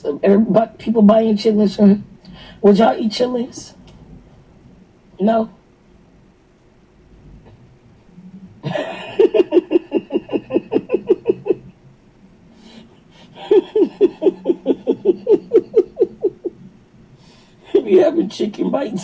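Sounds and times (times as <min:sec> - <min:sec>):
woman laughing hard: 0:08.6 - 0:11.7, 0:13.2 - 0:16.6.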